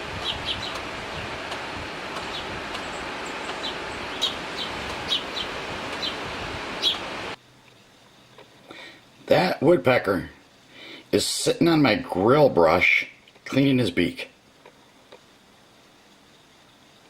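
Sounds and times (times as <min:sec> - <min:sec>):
steady hiss: 0:00.0 - 0:17.0
high bird chirps: 0:00.2 - 0:00.8, 0:02.2 - 0:07.1.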